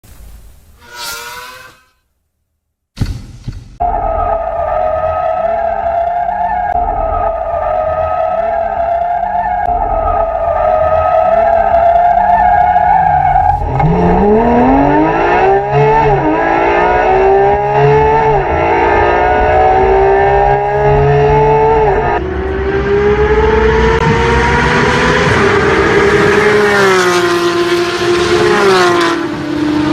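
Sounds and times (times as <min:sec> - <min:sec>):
sports car engine revving: 0:13.6 - 0:29.9.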